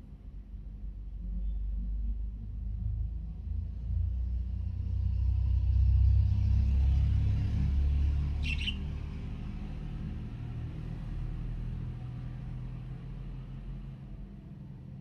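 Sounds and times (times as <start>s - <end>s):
budgerigar chirp: 8.4s - 8.8s.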